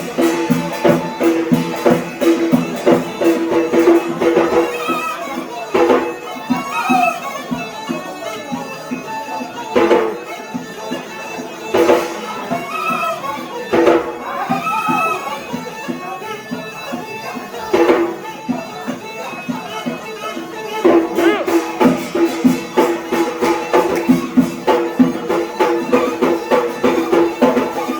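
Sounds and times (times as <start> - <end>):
steady drum strikes: 0.0 - 4.8, 20.8 - 27.9
reed pipe melody: 0.0 - 27.9.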